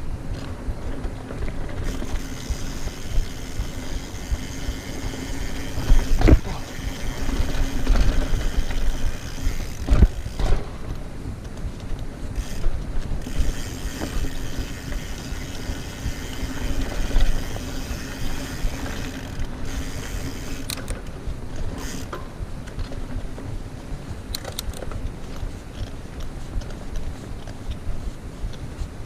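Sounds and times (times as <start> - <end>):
low riding rumble: 0.0 - 24.3
bike freehub ratchet buzzing: 1.8 - 10.6, 12.4 - 20.9, 21.6 - 22.2.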